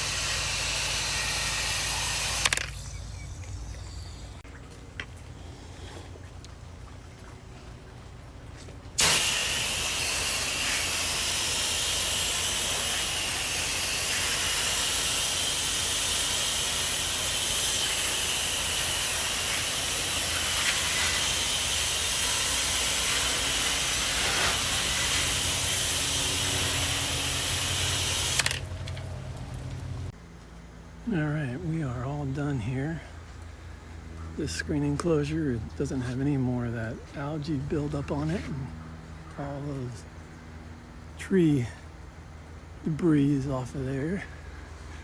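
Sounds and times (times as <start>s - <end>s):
pressure washer spraying water: 0.0s - 4.4s, 9.0s - 30.1s
low hum: 0.0s - 14.9s, 18.2s - 41.2s.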